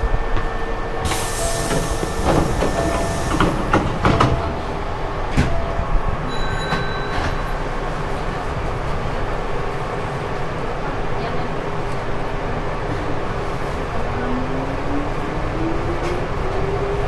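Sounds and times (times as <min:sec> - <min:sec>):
train humming with faint whine: 0:00.0 - 0:17.0
knocks and clicks: 0:01.7 - 0:04.6.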